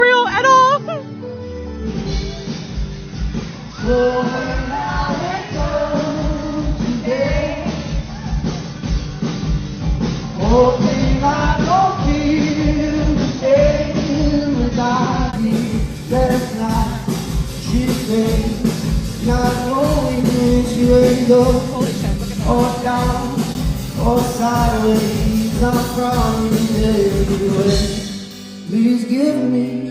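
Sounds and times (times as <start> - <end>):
band playing with steady beat: 0.0 - 1.0, 1.8 - 29.9
man singing: 3.7 - 8.0, 10.4 - 29.9.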